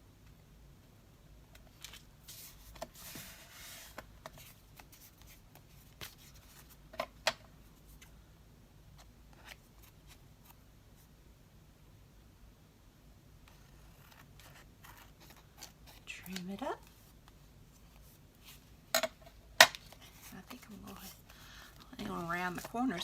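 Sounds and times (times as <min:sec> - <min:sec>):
paper rustling and rubbing: 0:01.7 - 0:06.8, 0:13.5 - 0:16.1, 0:19.8 - 0:23.0.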